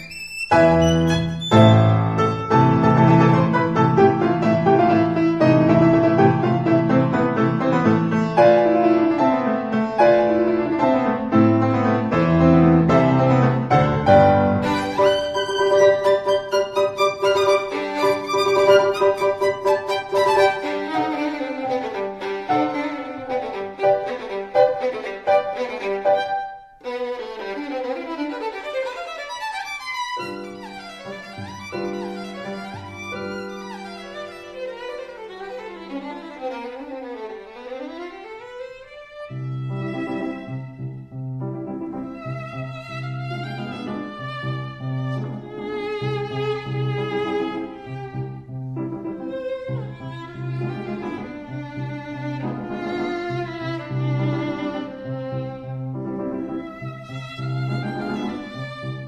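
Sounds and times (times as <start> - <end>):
piano melody over bass line: 0.0 - 26.4, 39.5 - 59.0
violin-led instrumental music: 0.0 - 59.0.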